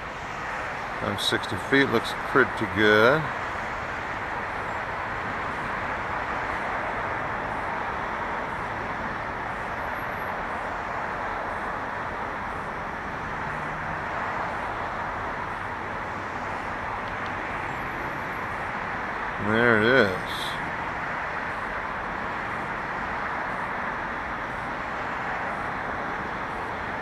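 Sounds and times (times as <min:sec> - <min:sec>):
distant road traffic hiss: 0:00.0 - 0:27.0.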